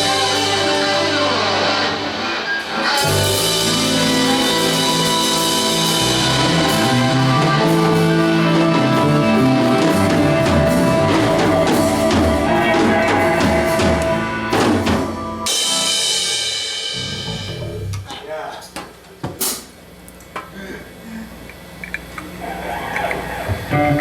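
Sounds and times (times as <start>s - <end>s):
live band playing: 0.0s - 18.1s
cymbal wash: 15.1s - 17.5s.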